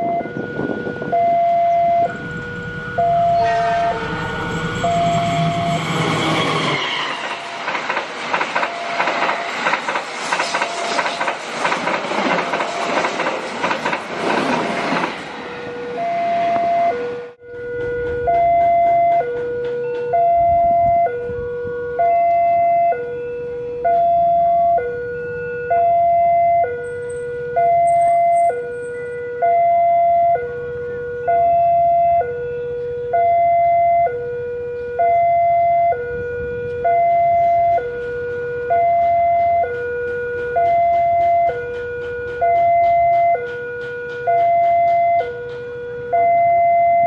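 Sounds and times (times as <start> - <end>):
two-tone crossing warning alarm: 0.0 - 47.0
low rumble: 2.0 - 11.6.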